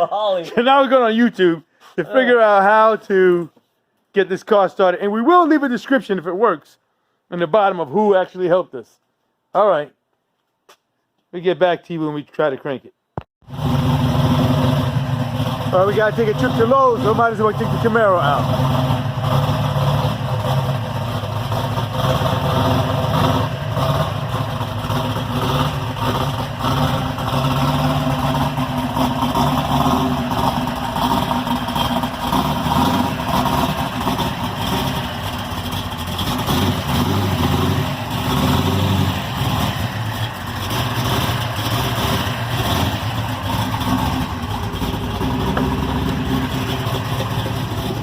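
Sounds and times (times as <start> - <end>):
car engine idling and revving: 13.4 - 48.0.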